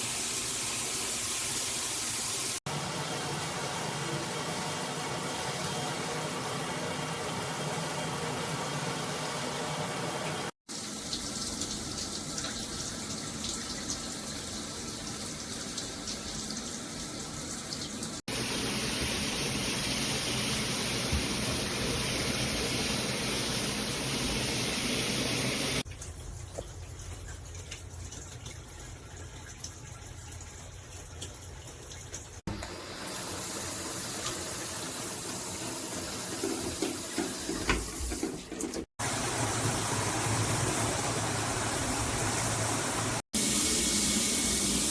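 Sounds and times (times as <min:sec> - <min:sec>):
water spraying from shower head: 0:18.2 - 0:25.9, 0:32.5 - 0:44.9.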